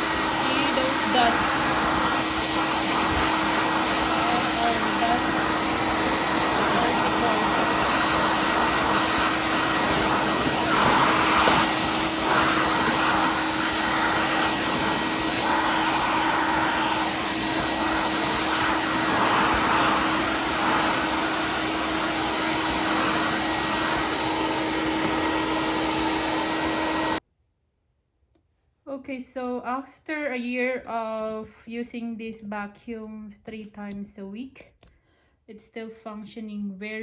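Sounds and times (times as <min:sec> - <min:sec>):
vacuum cleaner running: 0:00.0 - 0:27.2.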